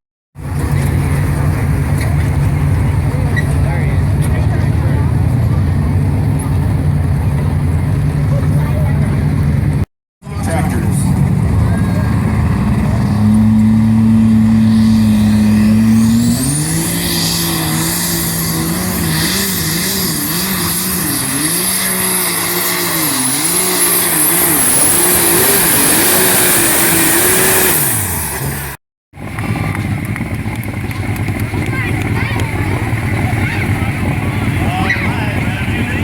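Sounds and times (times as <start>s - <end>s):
vehicle engine revving: 0.4s - 36.0s
high whine: 10.2s - 28.4s.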